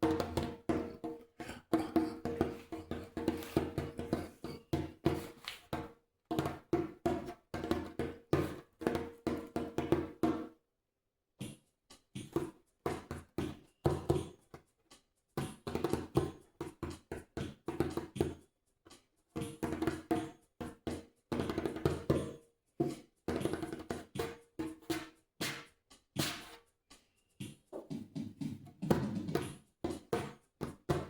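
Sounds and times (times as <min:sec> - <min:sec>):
djembe hand strokes: 0:00.1 - 0:05.8, 0:24.7 - 0:26.6, 0:27.4 - 0:30.2.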